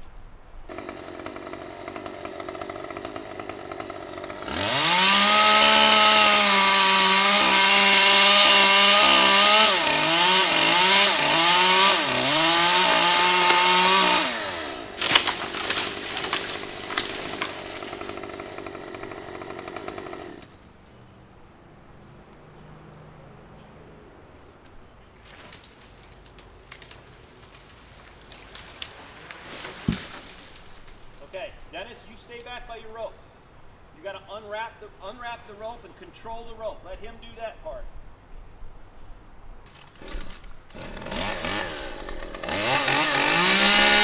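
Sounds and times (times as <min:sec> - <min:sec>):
chainsaw idling and revving: 0:00.7 - 0:20.6, 0:40.0 - 0:44.0
sharp cracks and knocks: 0:13.3 - 0:14.2, 0:15.0 - 0:18.3, 0:24.6 - 0:31.4.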